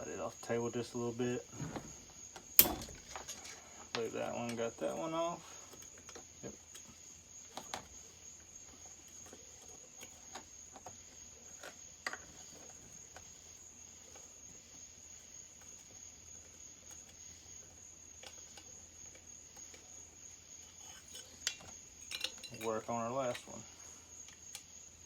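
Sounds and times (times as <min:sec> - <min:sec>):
small metal parts clicking: 0:02.5 - 0:03.6, 0:20.8 - 0:23.6.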